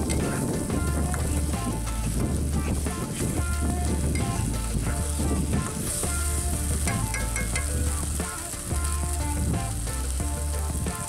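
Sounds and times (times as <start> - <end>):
background music with deep bass: 0.0 - 11.0
curry sizzling: 0.0 - 11.0
spoon stirring: 3.9 - 8.8.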